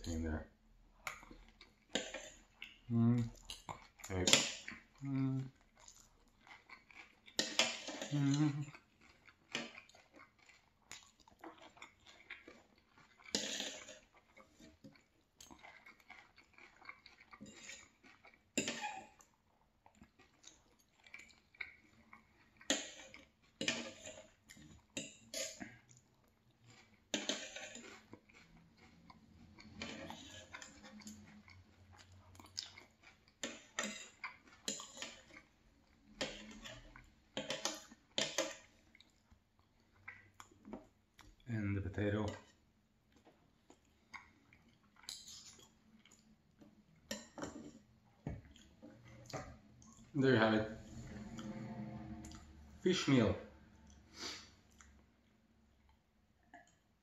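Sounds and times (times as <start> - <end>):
person chewing: 0.9 - 41.5, 42.2 - 52.6, 53.5 - 57.0
cutlery scraping a plate: 1.9 - 2.4, 7.4 - 8.2, 13.3 - 14.1, 17.4 - 17.9, 18.6 - 19.0, 22.7 - 24.4, 25.0 - 25.6, 27.1 - 28.1, 29.7 - 31.2, 33.4 - 35.4, 36.2 - 38.7, 47.1 - 47.8.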